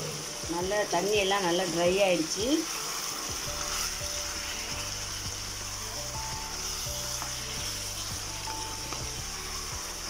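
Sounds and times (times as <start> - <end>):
chicken sizzling in a pan: 0.0 - 10.0
soft background music: 0.0 - 10.0.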